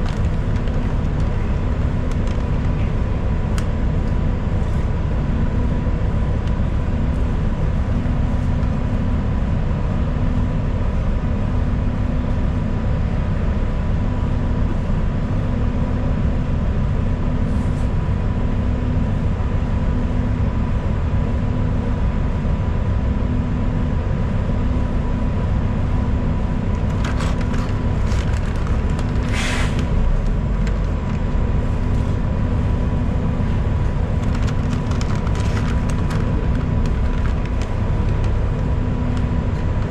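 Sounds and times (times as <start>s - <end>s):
bus engine and tyres droning: 0.0s - 39.9s
air brake hiss: 29.3s - 29.8s.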